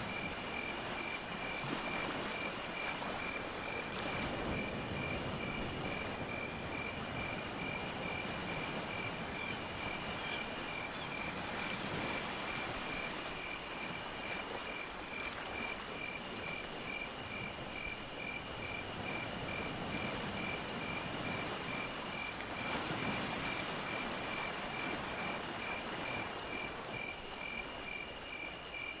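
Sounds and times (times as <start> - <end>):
cricket chirping evenly: 0.0 - 29.0.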